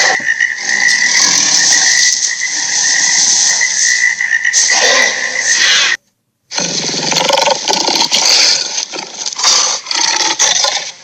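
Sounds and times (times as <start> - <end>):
creature rasping croak: 0.0 - 2.2, 6.5 - 11.0.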